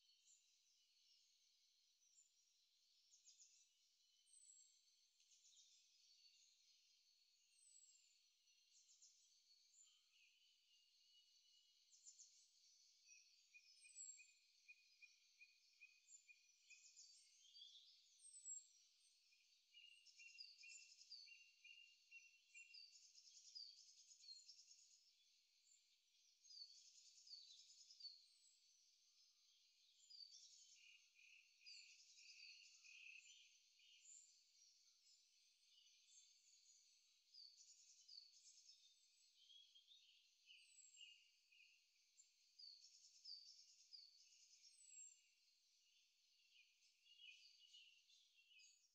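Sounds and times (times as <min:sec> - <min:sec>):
faint birdsong: 0:00.0 - 0:48.9.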